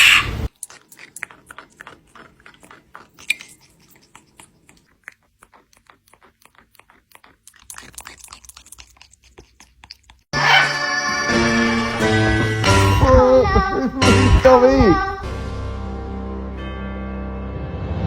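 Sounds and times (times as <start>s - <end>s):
chewing and crunching: 0.5s - 10.6s.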